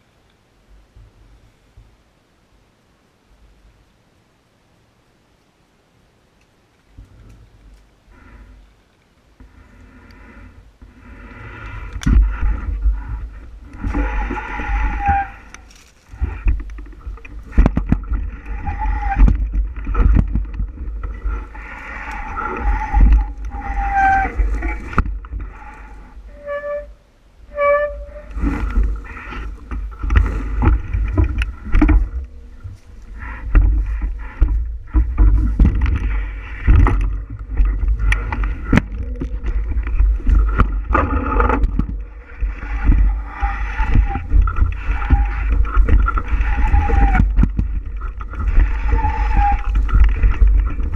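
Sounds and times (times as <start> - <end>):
short squeals: 14.0 - 16.5, 21.3 - 30.6, 42.4 - 50.8
wind buffeting microphone: 28.3 - 50.9.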